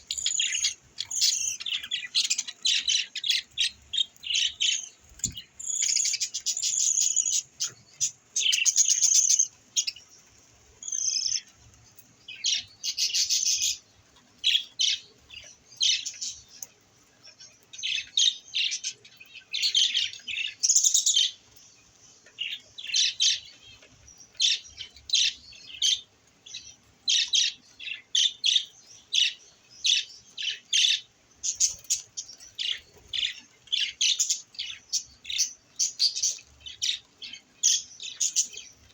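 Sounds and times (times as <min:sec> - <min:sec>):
budgerigars chirping: 0:00.0 - 0:10.0, 0:10.8 - 0:11.5, 0:12.4 - 0:13.8.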